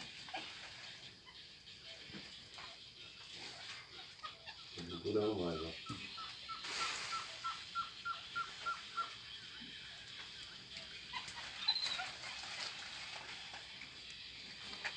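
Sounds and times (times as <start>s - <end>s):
steady hiss: 4.8s - 11.0s.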